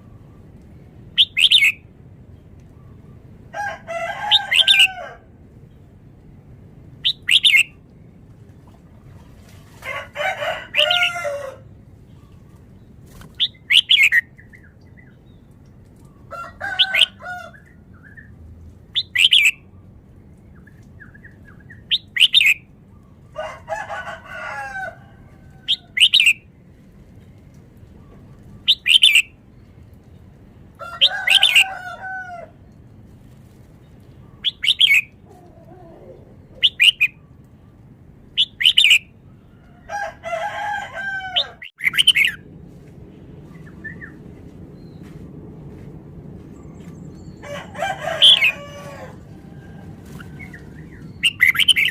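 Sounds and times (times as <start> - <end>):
bird warbled phrases: 34.4 - 37.1.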